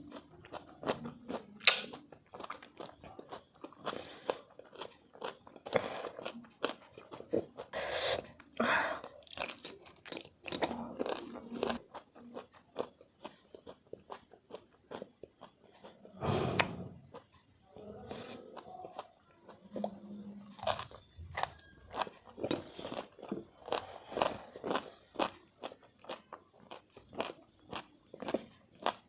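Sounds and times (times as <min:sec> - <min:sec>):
chewing and crunching mango: 0:00.0 - 0:29.0
wet mouth sounds: 0:01.6 - 0:02.0.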